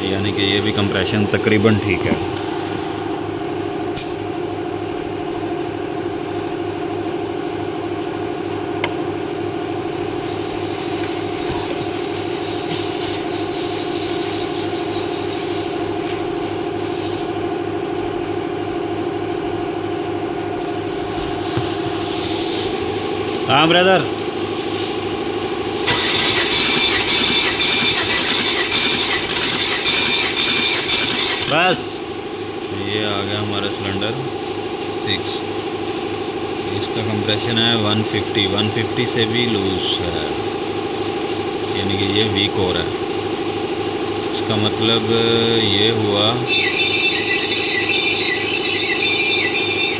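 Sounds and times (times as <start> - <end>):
engine cranking on starter motor: 25.7 - 32.0.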